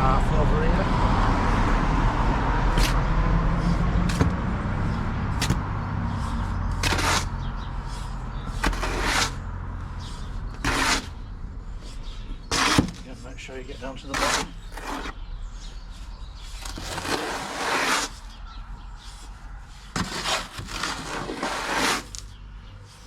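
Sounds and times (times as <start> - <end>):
shovel scraping sand and cement: 2.7 - 9.4, 10.0 - 11.2, 11.8 - 15.2, 16.4 - 18.4, 19.0 - 23.0.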